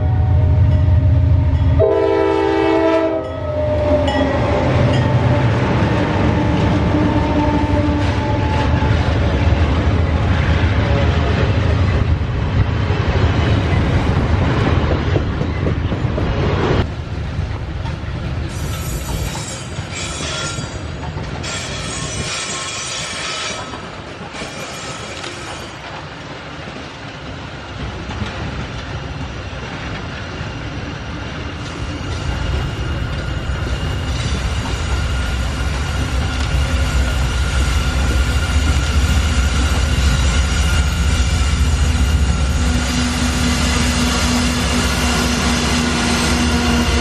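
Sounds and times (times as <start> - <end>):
train wheels clattering and squealing: 17.8 - 47.0.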